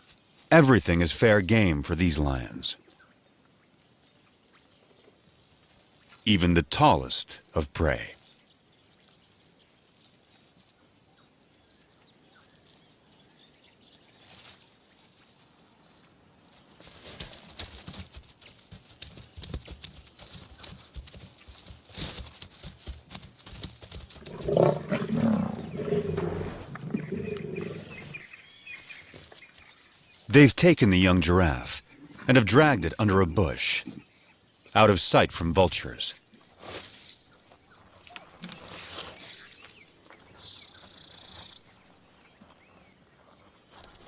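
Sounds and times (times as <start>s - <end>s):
lions growling: 24.2s - 28.3s.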